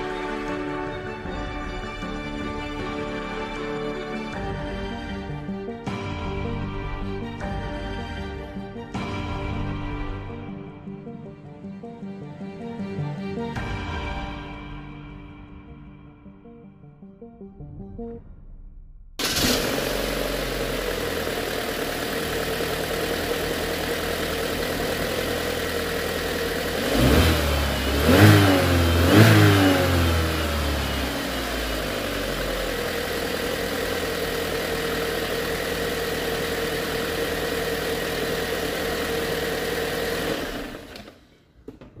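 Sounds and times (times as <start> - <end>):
car engine idling: 19.2 - 41.1
engine revving: 19.2 - 41.2.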